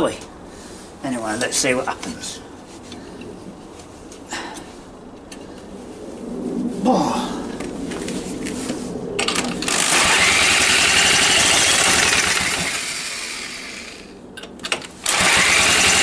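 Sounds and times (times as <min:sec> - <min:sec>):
electric starter cranking engine: 0:09.2 - 0:14.1, 0:14.7 - 0:16.0.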